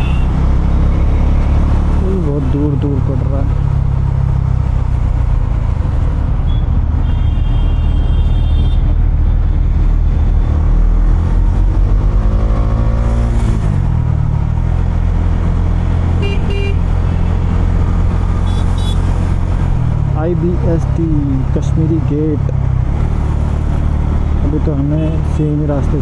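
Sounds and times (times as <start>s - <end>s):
vehicle horns honking: 0.0s - 1.5s, 6.5s - 8.8s, 16.2s - 17.0s, 18.4s - 19.2s.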